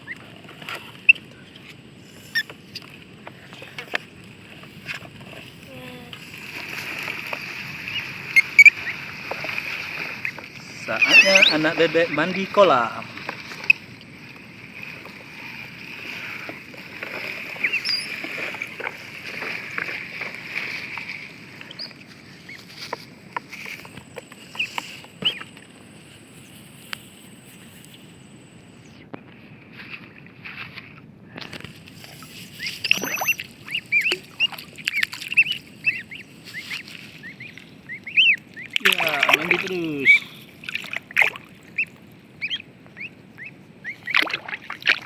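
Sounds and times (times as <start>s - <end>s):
water splashing and lapping: 0.0s - 27.0s, 29.9s - 45.0s
ducklings peeping: 7.7s - 9.0s, 10.2s - 12.5s, 17.5s - 19.2s, 23.5s - 25.6s, 32.5s - 44.4s.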